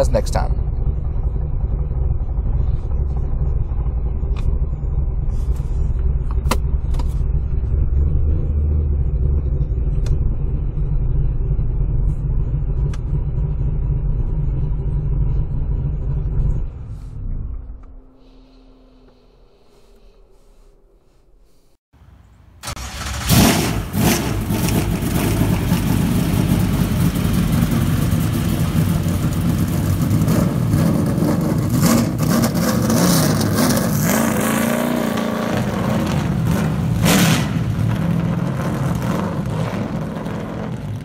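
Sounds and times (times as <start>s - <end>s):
loud engine blasts: 22.5s - 41.0s
car engine revving: 22.6s - 41.0s.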